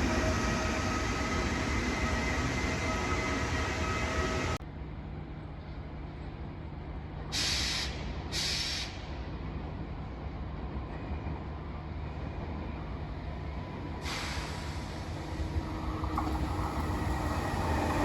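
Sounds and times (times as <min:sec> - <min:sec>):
train rumbling with whining tones: 0:00.0 - 0:18.0.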